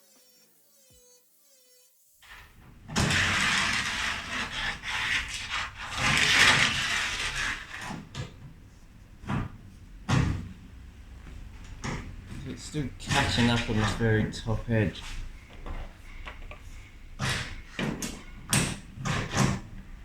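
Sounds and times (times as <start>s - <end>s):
sanding metal rasping: 0.0s - 7.9s
knocks and scrapes: 2.2s - 8.6s, 11.8s - 19.7s.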